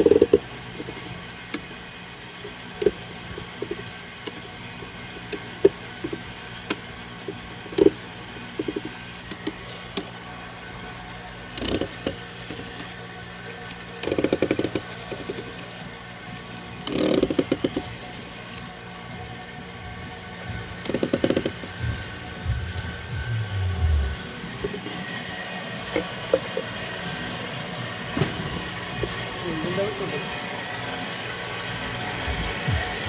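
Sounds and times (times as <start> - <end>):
steady low hum: 19.2 - 27.2, 32.0 - 33.0.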